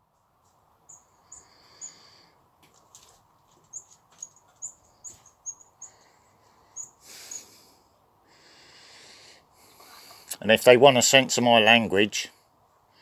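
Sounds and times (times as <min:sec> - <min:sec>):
small birds chirping: 0:00.4 - 0:08.8.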